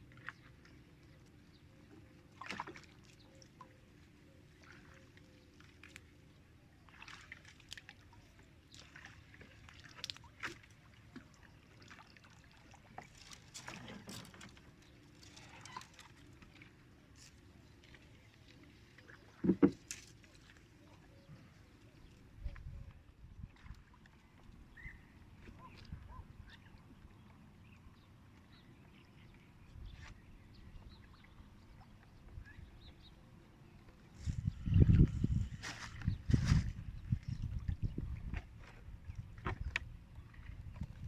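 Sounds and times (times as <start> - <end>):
water splashing and sloshing: 0.0 - 41.0
knocks on boat: 19.4 - 19.8.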